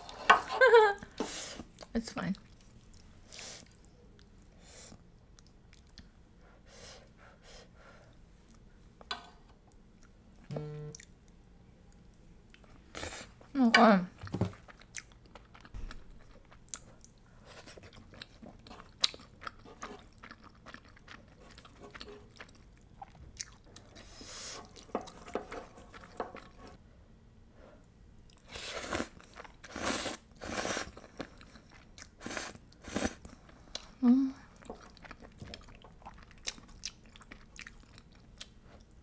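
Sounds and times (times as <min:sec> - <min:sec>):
close-miked chewing of pasta: 0:01.8 - 0:06.2, 0:14.5 - 0:26.8, 0:27.8 - 0:39.0.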